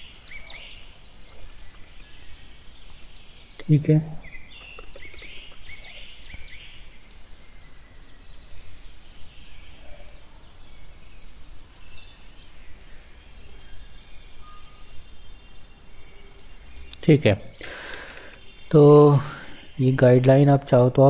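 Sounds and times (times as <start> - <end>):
faint bird chirps: 0.0 - 20.7
low background hum: 0.0 - 21.0
light clicks: 2.8 - 3.2, 11.7 - 12.1, 16.3 - 17.0.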